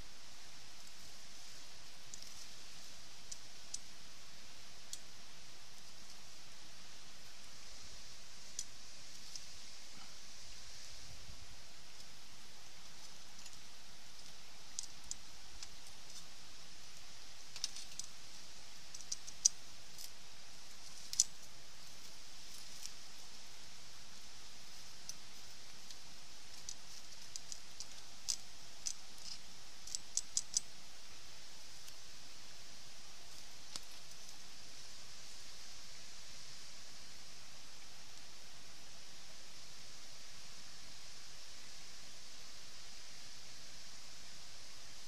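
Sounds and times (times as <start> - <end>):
campfire crackling: 0.6 - 35.4.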